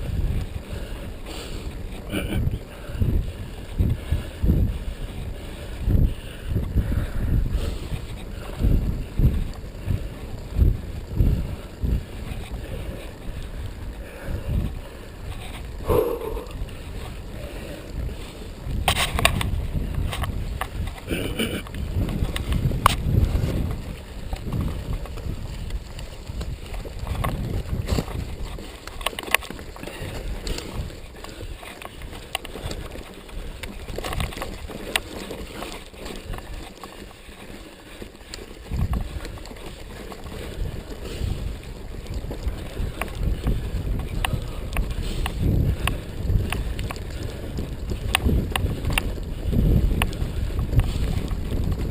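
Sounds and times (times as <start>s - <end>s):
bike knocking and rattling: 0.0s - 51.9s
wind and ground rumble: 0.0s - 51.9s.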